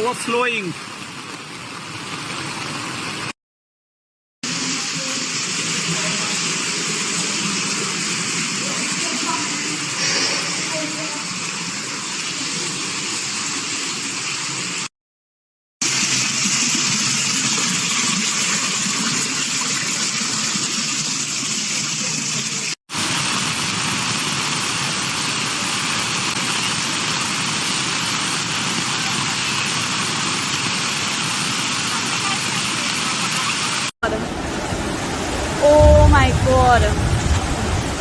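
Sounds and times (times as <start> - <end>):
floodwater rushing: 0.0 - 3.3, 4.4 - 14.9, 24.2 - 38.0.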